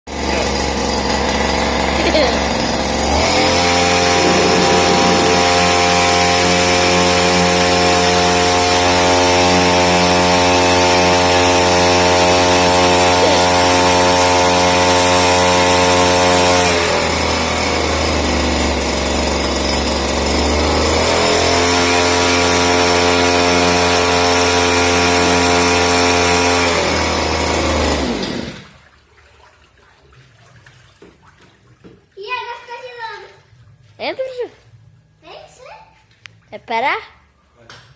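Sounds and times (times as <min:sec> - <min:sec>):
boat motor running: 0:00.2 - 0:28.6.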